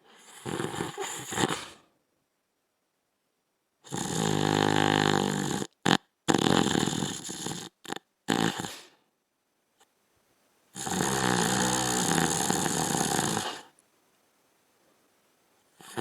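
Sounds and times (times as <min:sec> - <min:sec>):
snorts and breaths: 0:00.0 - 0:01.9, 0:03.9 - 0:09.0, 0:10.8 - 0:13.8, 0:15.8 - 0:16.0
man snoring: 0:00.2 - 0:01.7, 0:03.9 - 0:08.9, 0:10.8 - 0:13.7, 0:15.8 - 0:16.0.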